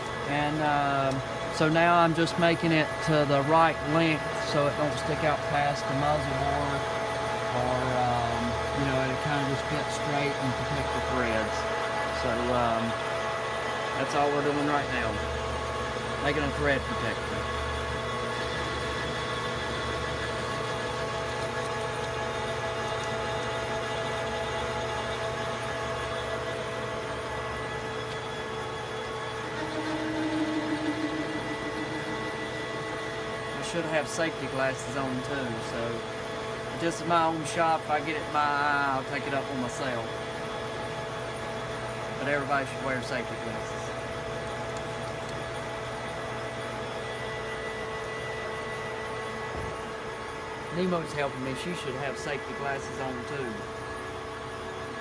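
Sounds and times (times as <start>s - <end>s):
cutting tool pulsing tone: 0.0s - 44.8s
metal lathe humming: 0.0s - 55.0s.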